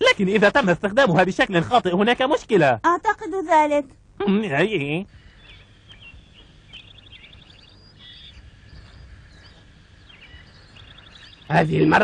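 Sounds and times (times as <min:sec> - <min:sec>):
bird chirps and trills: 0:05.1 - 0:12.0.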